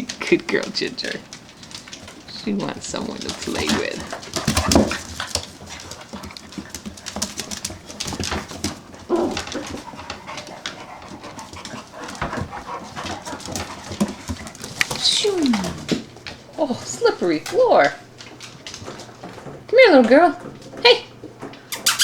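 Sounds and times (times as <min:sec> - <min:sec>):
puppies scuffling and clicking: 0:00.0 - 0:22.0
puppy whimpering cry: 0:21.7 - 0:22.0.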